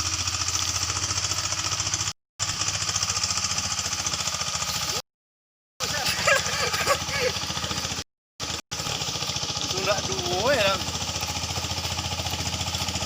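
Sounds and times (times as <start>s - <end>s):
engine running steadily: 0.0s - 5.0s, 5.8s - 13.0s.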